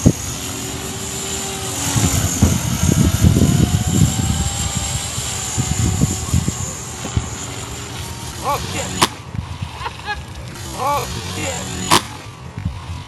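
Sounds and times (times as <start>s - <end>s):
low rumbling gusts: 0.0s - 13.0s
model helicopter motor whine: 0.0s - 13.0s.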